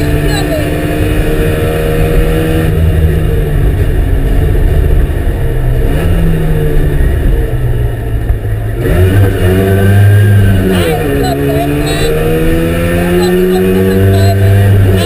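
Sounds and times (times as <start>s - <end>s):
two-stroke engine running hard: 0.0s - 2.9s, 8.8s - 15.0s.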